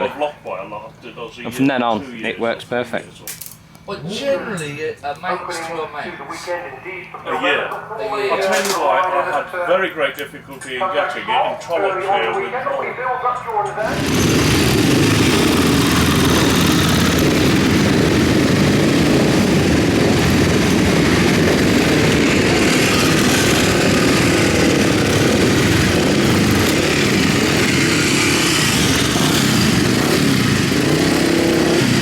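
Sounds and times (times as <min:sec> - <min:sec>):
motorcycle engine at high revs: 0:13.8 - 0:32.0.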